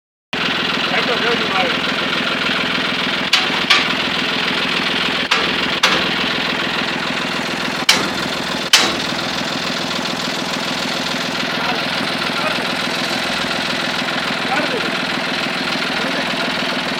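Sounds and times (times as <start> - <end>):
tractor engine running: 0.4 - 16.9
sharp knocks: 3.3 - 6.6, 7.7 - 9.5.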